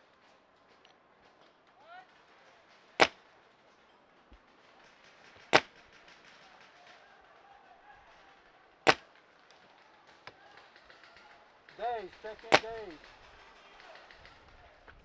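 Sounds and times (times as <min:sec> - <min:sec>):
faint field background noise: 0:00.0 - 0:15.0
paintball marker shots: 0:03.0 - 0:03.2, 0:05.3 - 0:06.1, 0:08.9 - 0:09.1, 0:11.7 - 0:13.2.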